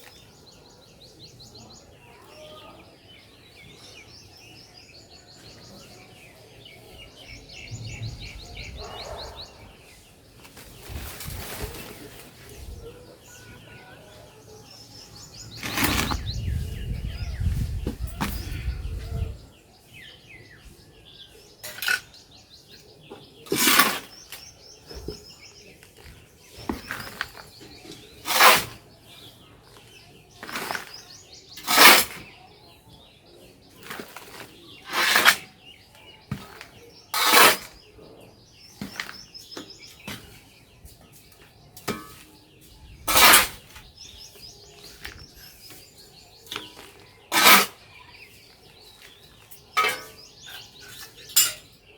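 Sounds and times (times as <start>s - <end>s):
birds chirping: 0.0s - 51.9s
soil scooped and poured: 15.5s - 16.3s, 23.5s - 24.4s, 26.6s - 28.8s, 30.4s - 32.2s, 33.8s - 35.5s, 36.3s - 37.7s, 43.1s - 43.8s, 46.5s - 47.8s.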